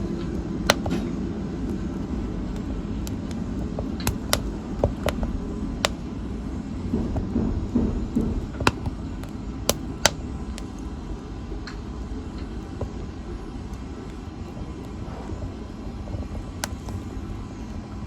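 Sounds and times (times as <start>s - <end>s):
fire crackling and popping: 0.6s - 6.2s.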